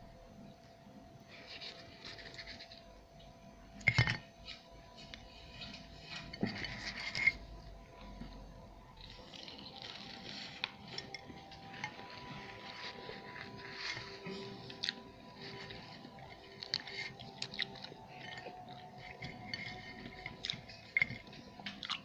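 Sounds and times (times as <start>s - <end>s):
dishes and cutlery clinking: 3.8s - 7.5s, 9.0s - 22.0s.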